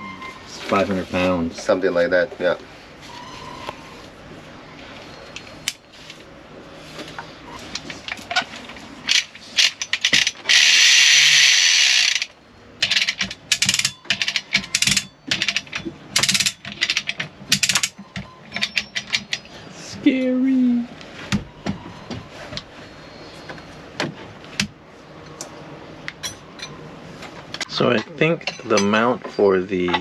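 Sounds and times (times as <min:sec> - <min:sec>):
chain hoist ratcheting: 0:09.1 - 0:19.5.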